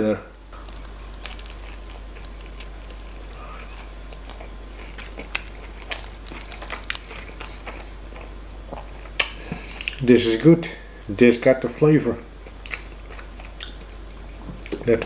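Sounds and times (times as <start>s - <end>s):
chewing with wet mouth noises: 0.6s - 10.1s, 12.4s - 15.0s
sharp clicks and crunches: 4.1s - 7.3s.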